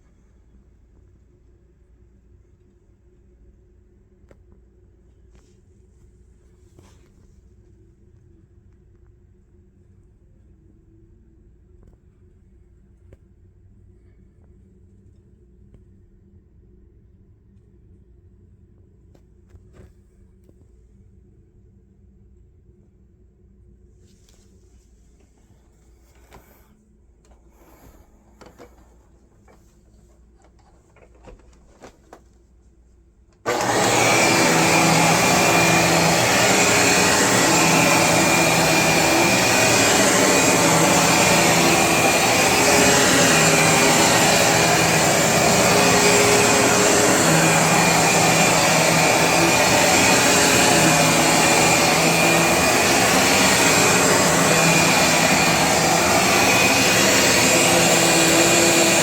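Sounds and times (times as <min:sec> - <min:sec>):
vacuum cleaner running: 0:25.6 - 0:26.7, 0:27.3 - 0:32.2, 0:33.4 - 0:59.0.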